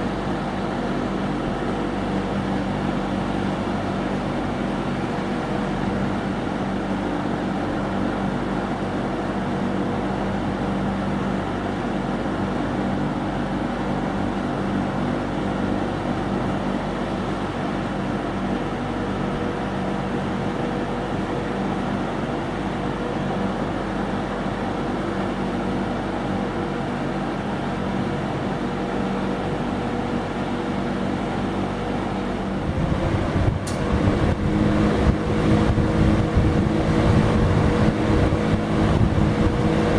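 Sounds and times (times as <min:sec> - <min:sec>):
box fan running: 0:00.0 - 0:39.9
fan switch click: 0:33.4 - 0:34.2.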